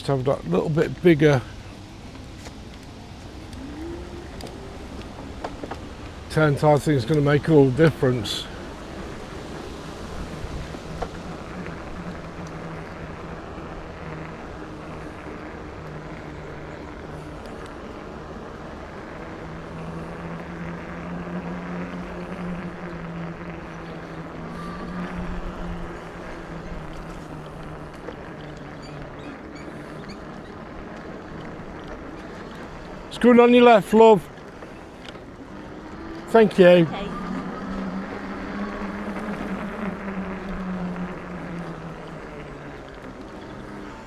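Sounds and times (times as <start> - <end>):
wind on microphone: 0.0 - 33.1
electric motor humming: 0.0 - 44.0.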